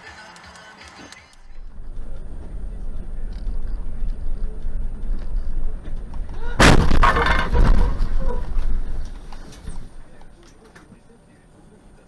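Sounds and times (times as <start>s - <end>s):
vehicle rumble: 1.3s - 12.0s
car crash: 1.5s - 10.2s
crunching and clattering: 1.8s - 11.0s.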